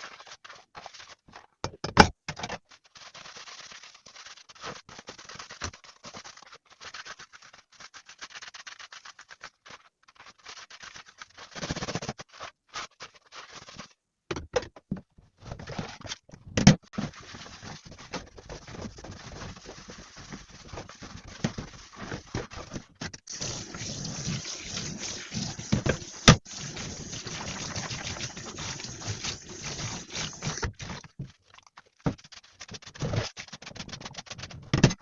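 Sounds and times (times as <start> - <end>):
tap water running: 17.9 - 31.1.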